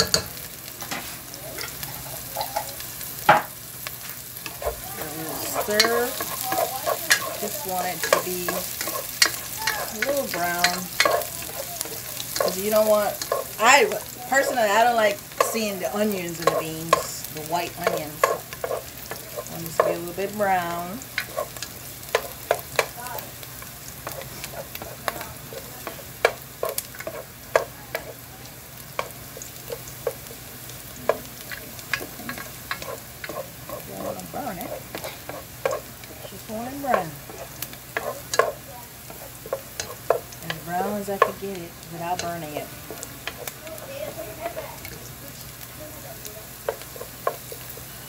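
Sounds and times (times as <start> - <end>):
spoon scraping a pan: 0.0 - 45.0, 46.6 - 48.0
onions sizzling in oil: 0.0 - 48.0.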